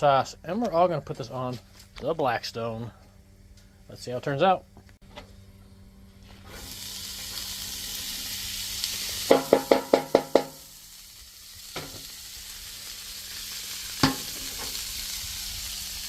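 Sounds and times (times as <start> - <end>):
food sizzling on griddle: 6.2 - 16.0.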